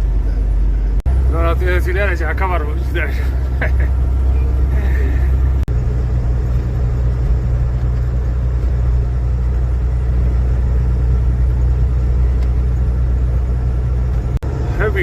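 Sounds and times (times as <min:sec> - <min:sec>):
vehicle cabin road drone: 0:00.0 - 0:15.0.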